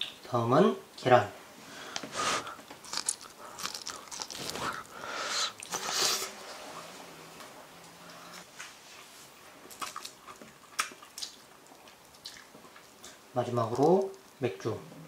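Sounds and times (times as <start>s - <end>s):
crunchy biting and chewing: 2.1s - 6.4s.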